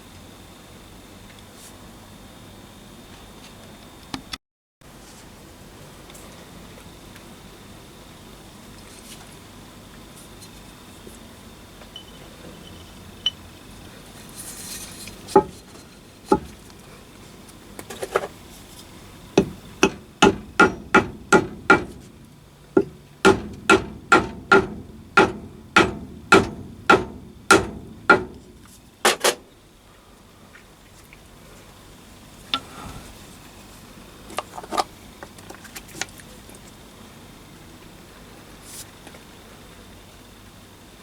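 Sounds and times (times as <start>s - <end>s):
hammer tapping on metal: 15.4s - 15.7s, 19.4s - 28.7s.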